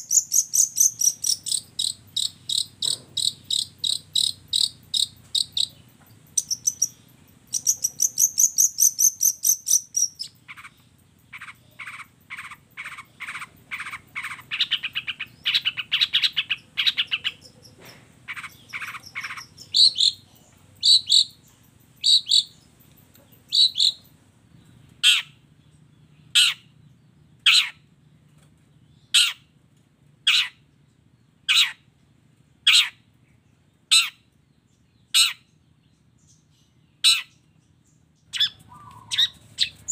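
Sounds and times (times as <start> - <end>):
shrike singing: 18.3 - 24.1.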